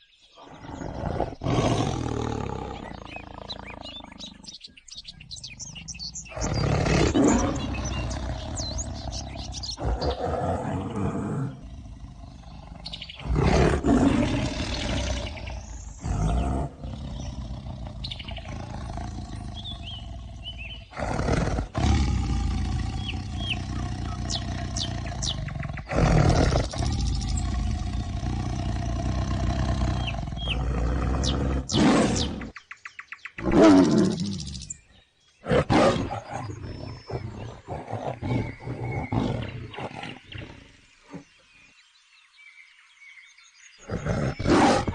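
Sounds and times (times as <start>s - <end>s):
tiger growling rumble: 0.4s - 32.6s, 33.4s - 34.8s, 35.4s - 41.4s, 43.8s - 44.9s
tiger roaring: 0.4s - 32.6s, 33.4s - 34.8s, 35.4s - 41.3s, 43.8s - 44.9s.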